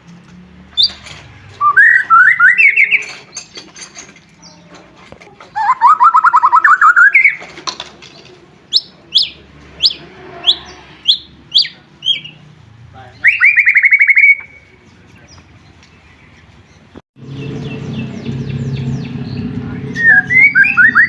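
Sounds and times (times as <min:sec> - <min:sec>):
bird singing trills and whistles: 0:01.6 - 0:03.6, 0:05.5 - 0:07.5, 0:08.7 - 0:12.4, 0:13.2 - 0:15.4, 0:17.3 - 0:21.0.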